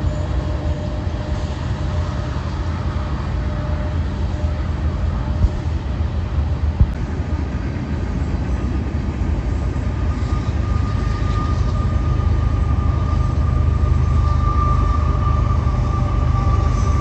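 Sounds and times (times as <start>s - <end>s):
freight train rumbling past: 0.0s - 17.0s
thin high whine: 9.9s - 17.0s.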